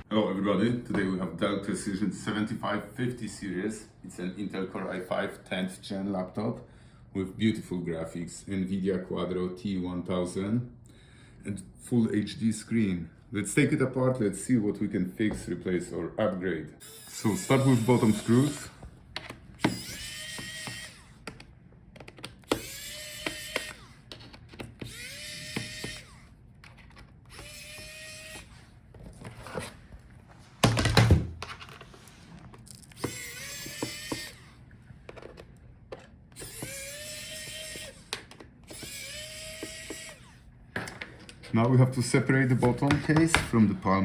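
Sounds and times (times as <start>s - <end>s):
electric screwdriver whining: 16.8s - 28.8s, 32.9s - 40.5s.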